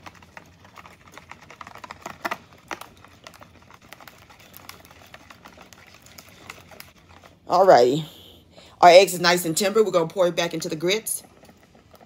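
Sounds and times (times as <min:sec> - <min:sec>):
whisk beating eggs in a bowl: 0:00.0 - 0:07.6.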